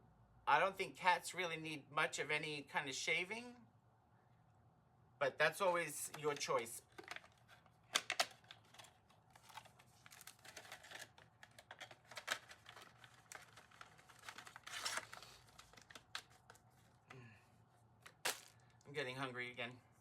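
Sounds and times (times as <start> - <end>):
items clicking and knocking: 6.1 - 17.1.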